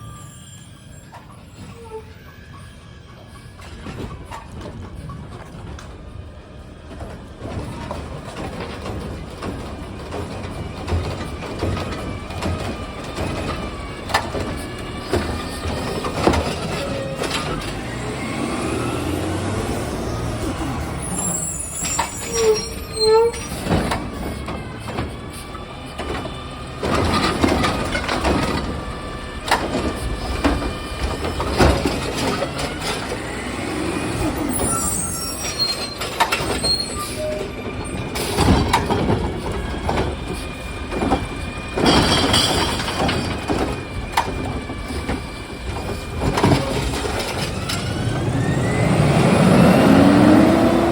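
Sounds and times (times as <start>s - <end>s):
diesel engine running: 42.8s - 50.9s.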